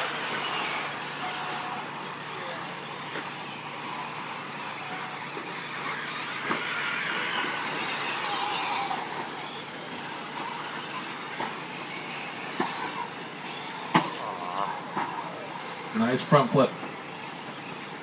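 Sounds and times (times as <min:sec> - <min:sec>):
small motors whirring: 0:00.0 - 0:18.0
tyres on dirt: 0:00.0 - 0:18.0
sharp knocks of trucks landing: 0:13.9 - 0:14.3.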